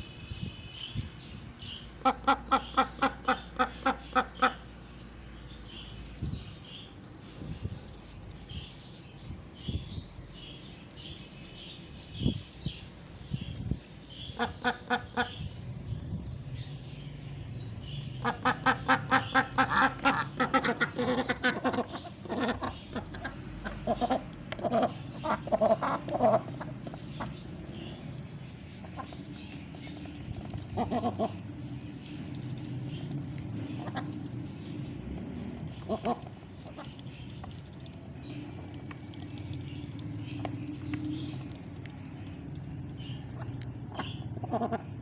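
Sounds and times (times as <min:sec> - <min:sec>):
ducks quacking rapidly: 0:02.0 - 0:04.6, 0:18.2 - 0:26.7.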